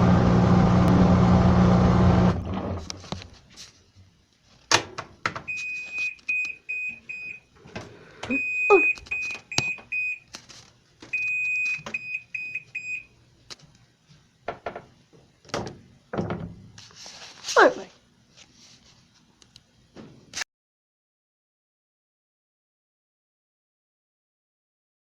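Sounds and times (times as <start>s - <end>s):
washing machine beeps: 5.5s - 7.5s, 8.2s - 10.3s, 11.1s - 13.2s.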